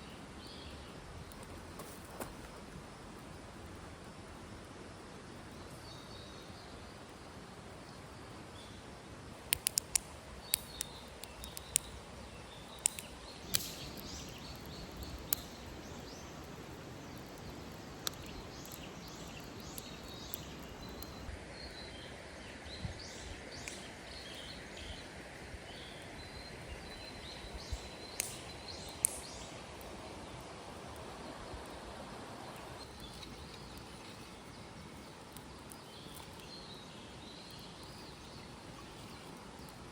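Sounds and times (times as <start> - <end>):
outdoor background hiss: 0.0 - 39.9
small birds chirping: 9.4 - 25.1, 25.7 - 31.8, 32.4 - 39.9
sharp clicks and knocks: 9.5 - 11.9.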